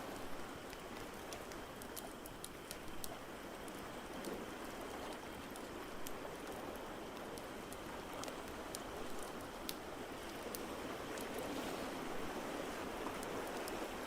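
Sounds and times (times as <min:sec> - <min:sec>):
fire crackling and popping: 0:04.7 - 0:10.6.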